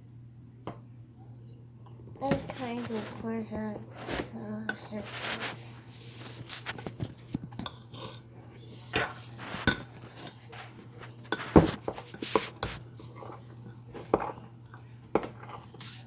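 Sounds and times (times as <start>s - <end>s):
utensils and dishes clinking: 8.8s - 16.0s.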